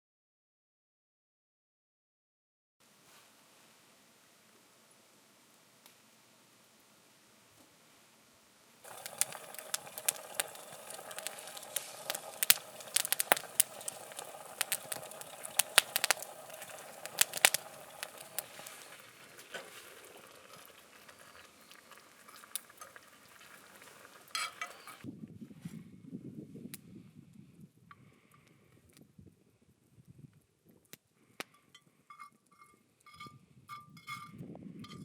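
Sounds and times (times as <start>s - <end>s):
food sizzling in a frying pan: 8.8s - 25.0s
spattering pops: 8.9s - 25.0s.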